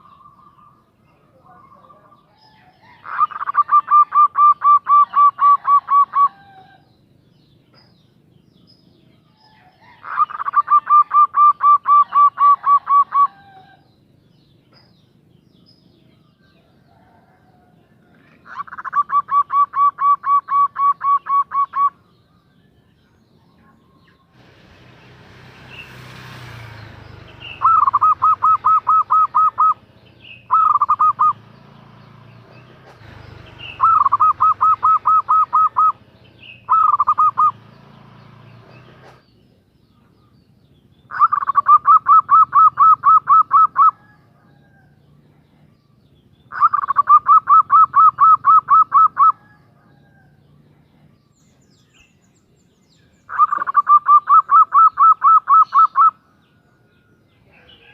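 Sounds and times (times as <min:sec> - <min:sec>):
dove cooing: 0:01.6 - 0:06.9, 0:09.5 - 0:13.9, 0:16.7 - 0:22.0, 0:27.4 - 0:31.4, 0:33.0 - 0:37.6, 0:41.1 - 0:45.4, 0:46.5 - 0:50.3, 0:53.3 - 0:56.2.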